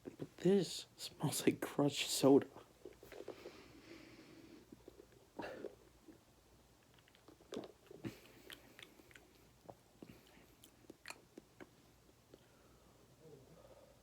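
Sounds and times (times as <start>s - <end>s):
person sipping and swallowing: 4.6s - 6.2s, 6.8s - 12.5s.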